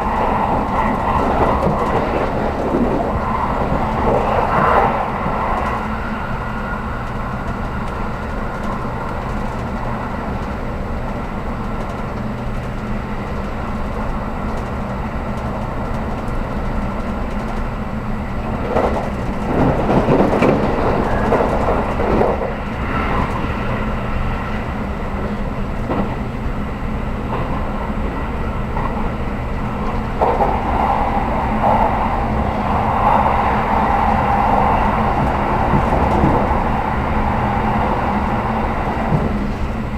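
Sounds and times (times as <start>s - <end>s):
train hum: 0.0s - 39.9s
train rumbling: 0.0s - 39.9s.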